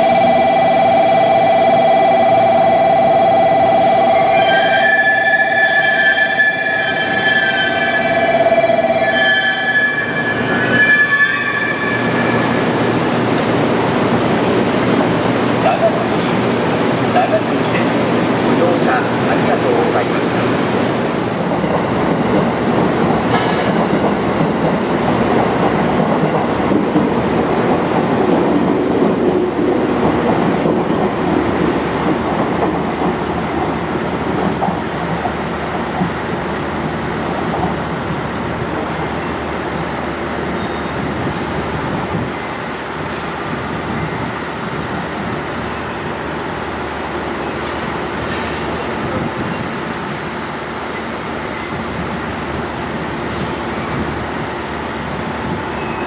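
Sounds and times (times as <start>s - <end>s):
electric train rumbling on tracks: 0.0s - 56.0s
high wheel squeal: 4.3s - 12.8s, 39.2s - 56.0s
sharp clicks from rails: 21.4s - 36.3s.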